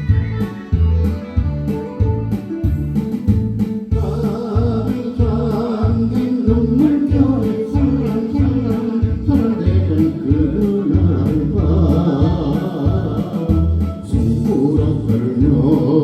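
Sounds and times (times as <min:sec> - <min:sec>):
karaoke backing track: 0:00.0 - 0:16.0
person singing: 0:03.9 - 0:16.0.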